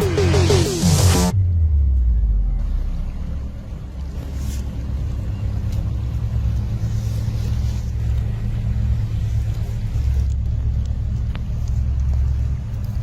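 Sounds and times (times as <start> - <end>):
low rumble with deep hum: 0.0 - 13.0.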